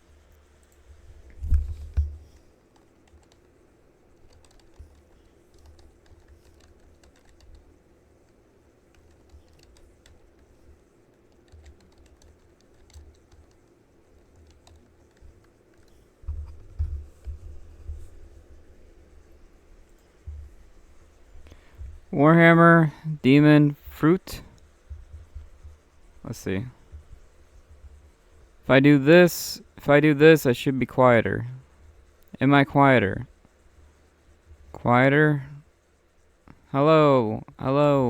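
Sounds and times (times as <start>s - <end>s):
steady low hum: 0.0s - 38.0s
typing on computer keyboard: 1.7s - 17.4s.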